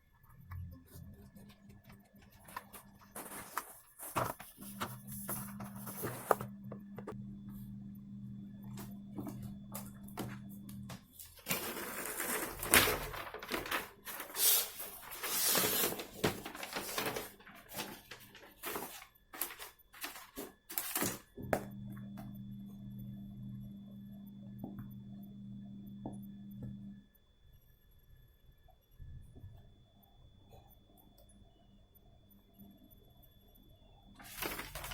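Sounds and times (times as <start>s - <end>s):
low steady hum: 0.0s - 34.9s
packaging rustling and scraping: 1.4s - 7.2s, 9.2s - 21.3s, 34.2s - 34.9s.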